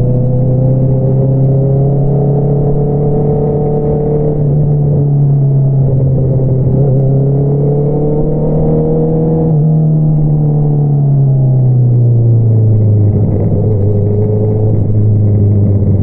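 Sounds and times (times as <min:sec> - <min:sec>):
motorcycle engine exhaust: 0:11.9 - 0:16.0.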